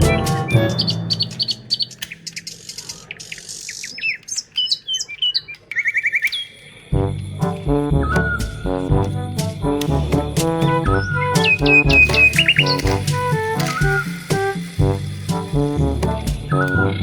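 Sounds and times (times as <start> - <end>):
music: 0.0 - 1.7, 7.0 - 17.0
bird trill: 0.0 - 6.6, 11.0 - 13.0
birds chirping: 0.0 - 6.8, 10.1 - 14.6.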